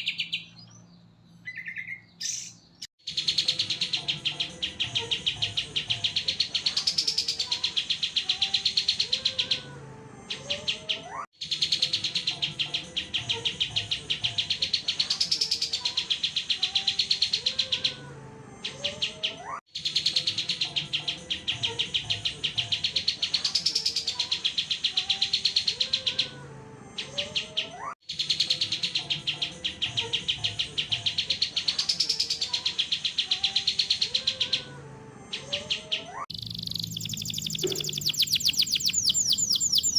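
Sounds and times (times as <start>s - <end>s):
songbird rapid trill: 35.4s - 39.9s.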